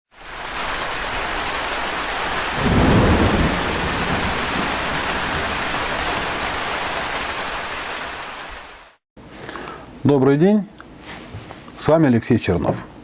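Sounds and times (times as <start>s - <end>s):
heavy rain: 0.1s - 9.0s
rumbling thunderclap: 2.5s - 7.6s.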